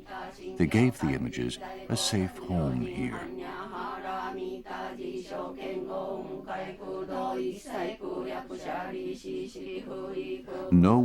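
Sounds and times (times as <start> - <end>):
voices chanting: 0.0 - 11.0.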